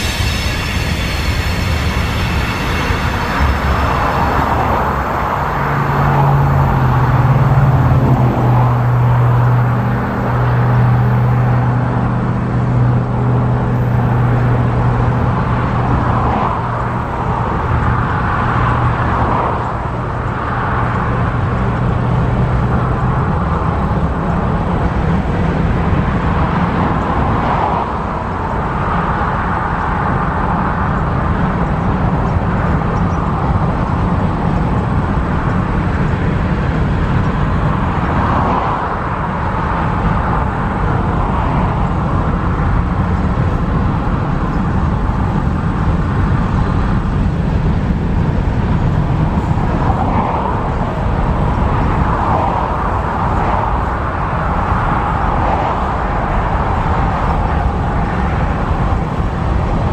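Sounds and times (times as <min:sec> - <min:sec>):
low hum: 0:00.0 - 0:27.7
train wheels rumbling on rail: 0:00.0 - 0:59.9.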